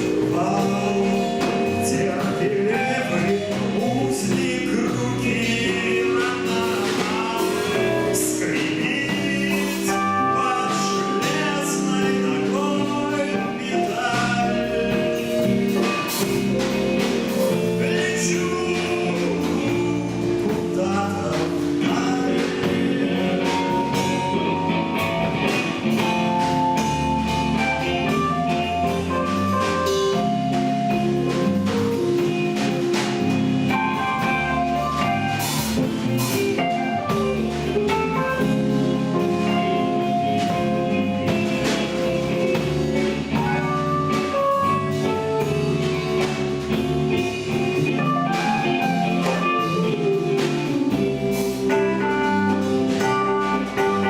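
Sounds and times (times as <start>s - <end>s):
drum kit beat: 0.0s - 54.0s
guitar melody: 0.0s - 54.0s.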